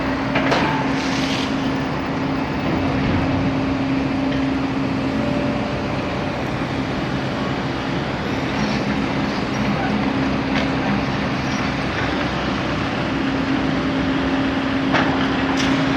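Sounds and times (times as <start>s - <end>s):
vehicle engines and traffic rumble: 0.0s - 15.9s.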